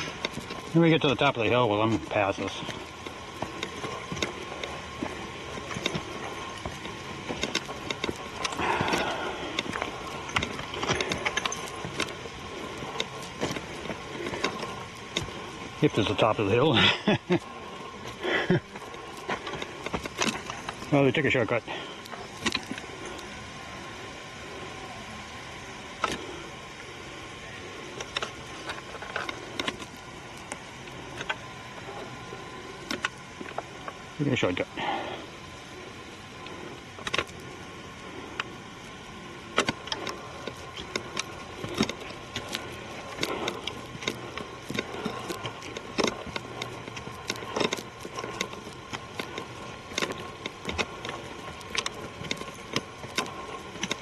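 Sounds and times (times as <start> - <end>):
footsteps on forest trail: 0.0 - 24.9, 25.8 - 54.0
background hiss: 0.0 - 54.0
rustling: 35.2 - 54.0.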